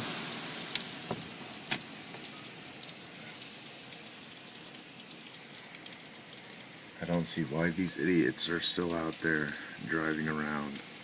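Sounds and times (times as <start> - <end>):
car tyres hissing on wet road: 0.0 - 2.1
heavy rain: 0.0 - 11.0.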